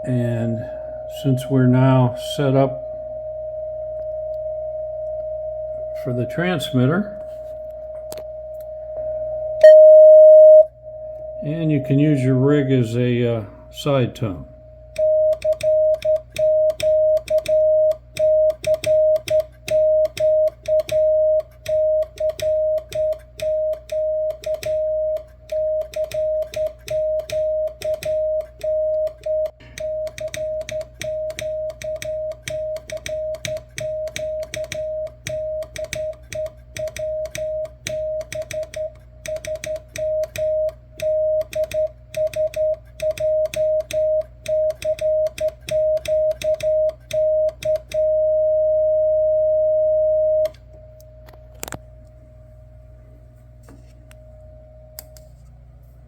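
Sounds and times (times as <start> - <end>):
morse code tone: 0.0 - 50.6
telegraph key clicks: 15.0 - 48.1.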